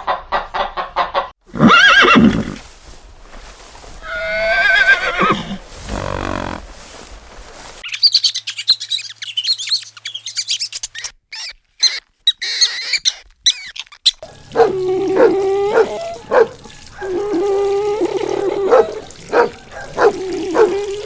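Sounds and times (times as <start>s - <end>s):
small birds chirping: 5.2s - 14.6s
dog whining: 14.2s - 21.0s.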